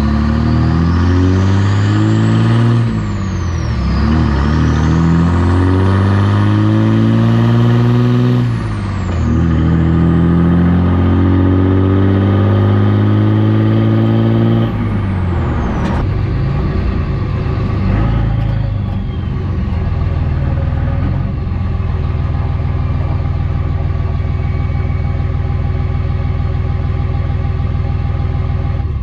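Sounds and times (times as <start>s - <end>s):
diesel truck accelerating: 0.0s - 29.0s
turbo whistle: 24.2s - 25.9s.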